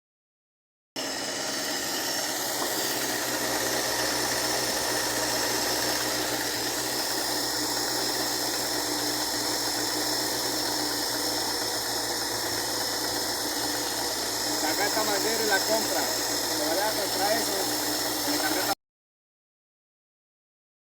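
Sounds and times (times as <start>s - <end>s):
engine running steadily: 1.0s - 18.8s.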